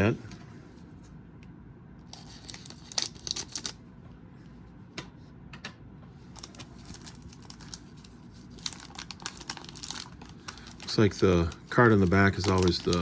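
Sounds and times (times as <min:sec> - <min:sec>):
card wrapper crinkling and clicking: 0:02.0 - 0:03.8, 0:06.3 - 0:13.0.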